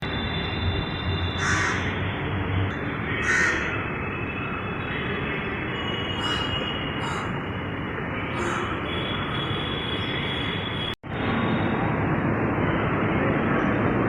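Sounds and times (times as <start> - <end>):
crows cawing: 1.4 - 1.9, 3.1 - 3.8, 6.2 - 7.4, 8.4 - 8.9.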